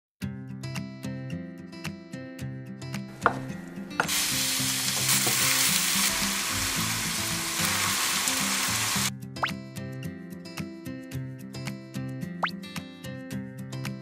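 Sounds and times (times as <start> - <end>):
background music: 0.2 - 14.0
knife chop on cutting board: 3.2 - 4.2
food sizzling in frying pan: 3.2 - 9.1.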